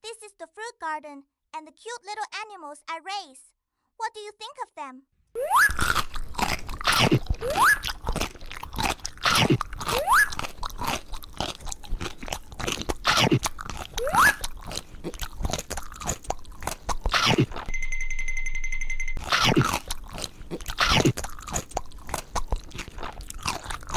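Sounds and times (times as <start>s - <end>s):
crunchy bites and chewing: 5.6s - 17.7s, 19.2s - 23.9s.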